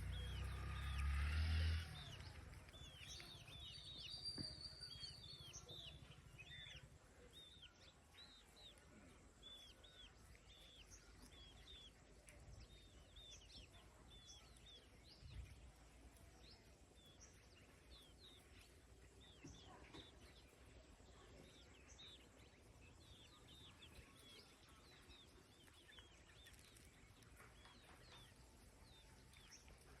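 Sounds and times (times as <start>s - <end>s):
chicks peeping: 1.8s - 30.0s.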